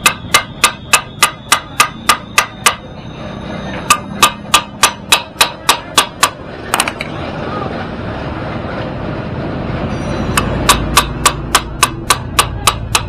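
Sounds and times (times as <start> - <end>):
hammer striking metal: 0.0 - 3.0, 3.6 - 7.1, 9.9 - 13.0.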